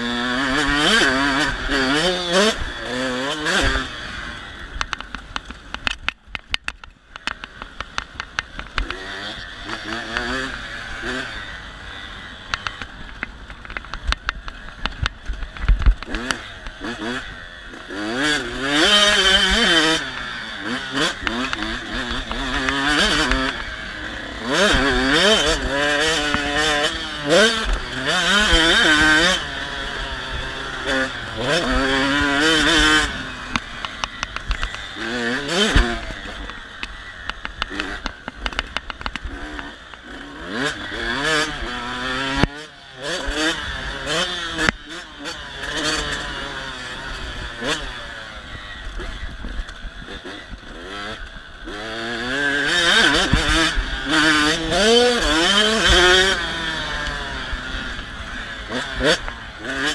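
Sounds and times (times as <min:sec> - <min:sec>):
dirt bike engine revving: 0:00.0 - 0:59.9
sharp ticks: 0:04.8 - 0:10.6, 0:12.4 - 0:23.8, 0:24.4 - 0:47.9.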